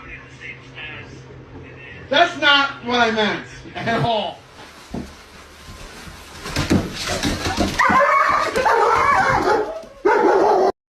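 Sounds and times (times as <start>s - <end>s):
dog whining: 7.7s - 10.7s.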